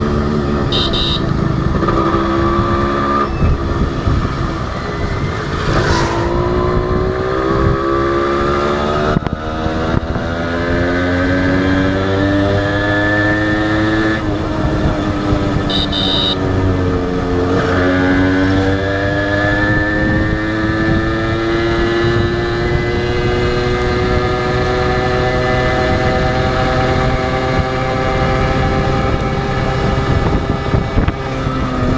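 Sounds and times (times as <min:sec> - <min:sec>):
motorcycle engine accelerating: 0:00.0 - 0:31.9
short high-pitched beeps: 0:00.7 - 0:01.3, 0:15.7 - 0:16.4.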